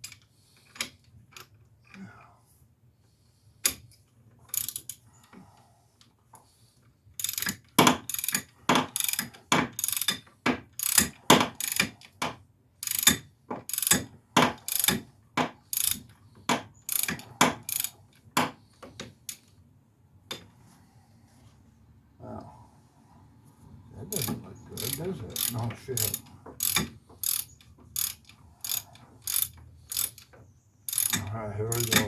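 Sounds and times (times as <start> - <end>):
socket ratchet clicking: 4.5 - 5.0, 7.2 - 10.2, 10.8 - 12.0, 12.8 - 14.1, 14.7 - 15.0, 15.6 - 17.9, 24.2 - 30.3, 30.9 - 32.0.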